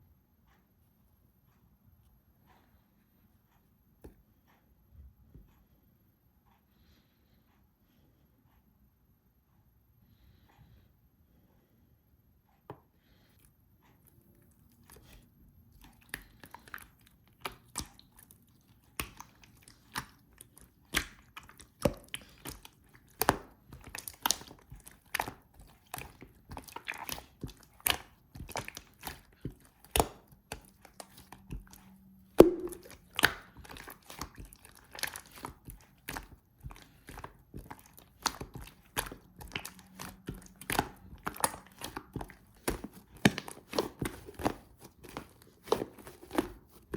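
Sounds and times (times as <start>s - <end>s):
slime squeezed by hand: 32.4s - 46.8s.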